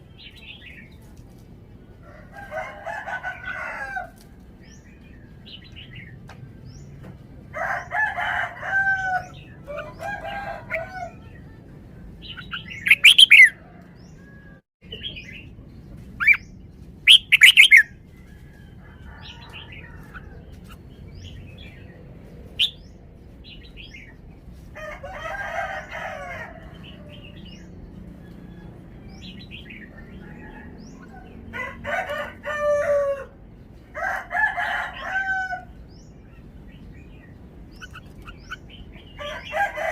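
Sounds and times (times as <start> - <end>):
bulbul singing whistled phrases: 12.3 - 13.6, 17.1 - 17.9.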